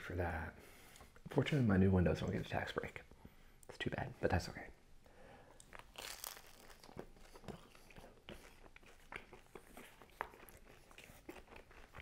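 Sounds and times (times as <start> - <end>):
chewing crispy pizza crust: 5.6 - 12.0.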